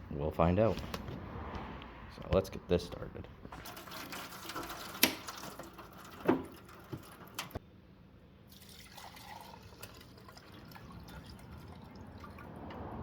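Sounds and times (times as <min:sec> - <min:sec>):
gasoline dripping into a pan: 0:03.5 - 0:07.6, 0:08.5 - 0:12.8.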